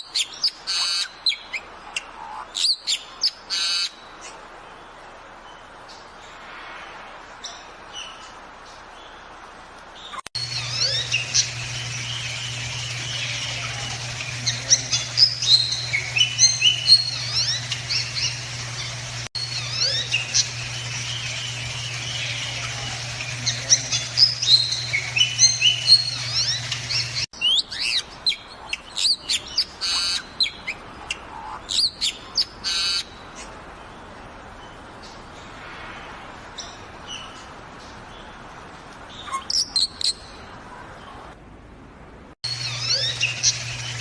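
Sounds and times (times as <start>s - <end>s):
steady low hum: 10.4s - 27.3s, 42.5s - 44.0s
birds whistling and chirping: 10.4s - 30.7s, 42.5s - 44.0s.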